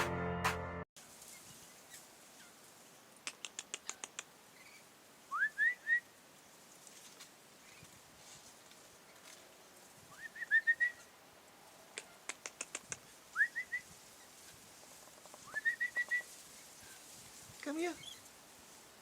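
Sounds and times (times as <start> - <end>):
sharp clicks: 3.2 - 4.3, 12.0 - 13.0
person whistling bird call: 15.5 - 16.3.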